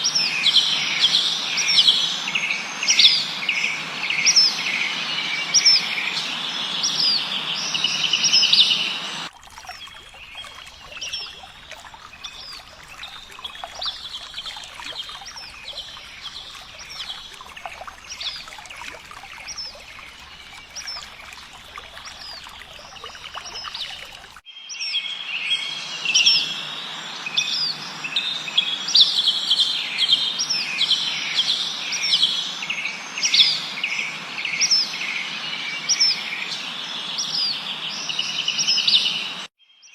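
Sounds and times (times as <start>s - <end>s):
songbirds chirping: 4.2s - 24.4s.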